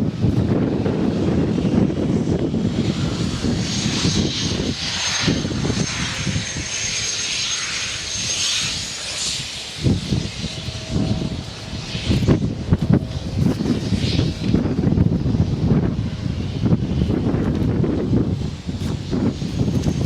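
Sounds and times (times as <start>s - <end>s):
thin high whine: 2.8s - 15.9s.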